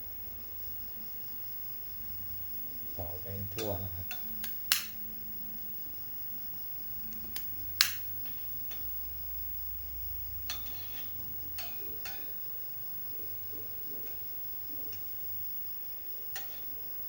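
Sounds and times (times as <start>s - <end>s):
sharp clicks and light taps: 3.6s - 5.0s, 7.1s - 8.1s.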